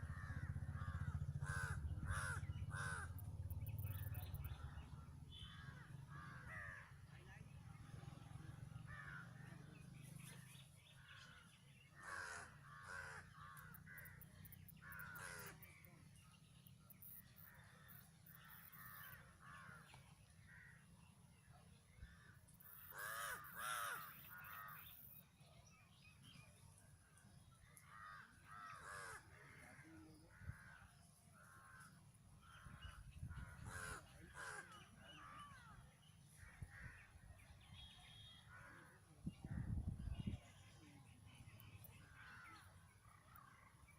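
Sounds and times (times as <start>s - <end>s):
crows cawing: 0.0s - 4.8s, 5.5s - 7.1s, 8.9s - 9.4s, 12.0s - 15.8s, 17.4s - 20.8s, 22.6s - 25.0s, 27.6s - 37.2s.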